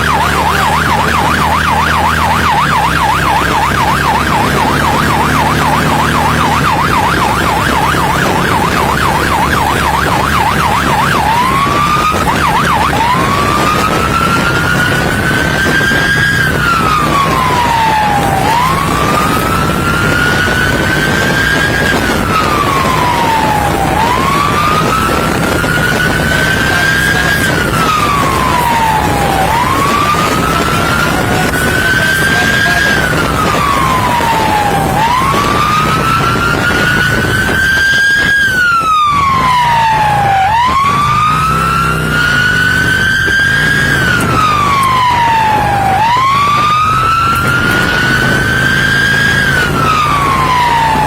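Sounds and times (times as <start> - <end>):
engine and road noise: 0.0 - 51.0
police siren yelp and wail: 0.0 - 51.0.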